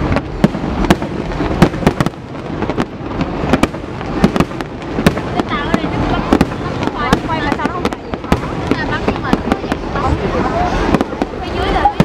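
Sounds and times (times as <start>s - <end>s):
distant fireworks rumble: 0.0s - 12.0s
fireworks sharp bangs: 0.0s - 12.0s.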